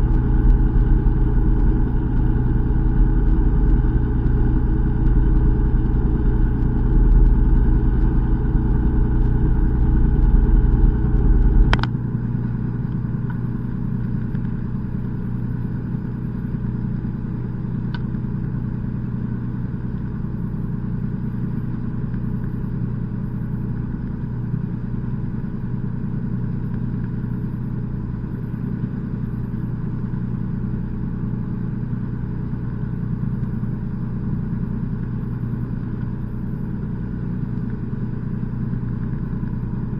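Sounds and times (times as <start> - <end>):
heavy low rumble: 0.0 - 15.2
boat engine humming: 0.0 - 17.7
click: 10.1 - 11.9, 17.9 - 18.2, 37.5 - 37.8.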